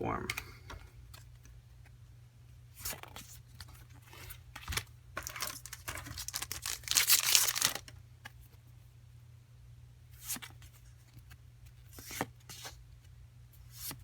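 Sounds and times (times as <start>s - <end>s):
foil wrapper crinkling and tearing: 5.2s - 8.0s.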